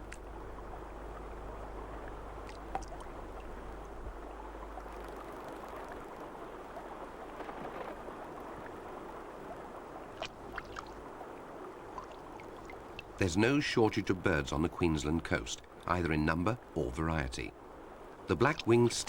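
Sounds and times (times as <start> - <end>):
water splashing and lapping: 2.0 - 13.2.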